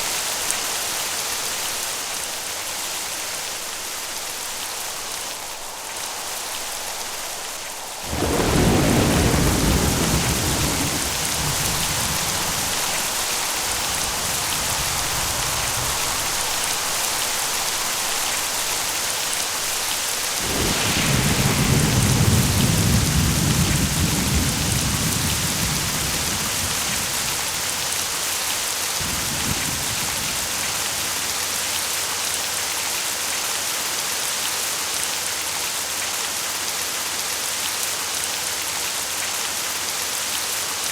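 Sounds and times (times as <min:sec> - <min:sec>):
heavy rain hissing: 0:00.0 - 0:40.8
thunder rumbling: 0:03.3 - 0:31.8.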